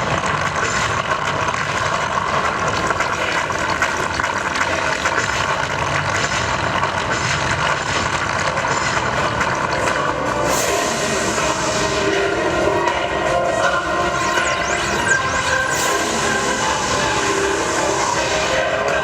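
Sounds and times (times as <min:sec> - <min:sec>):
loud rumbling sound effects: 0:10.3 - 0:19.0.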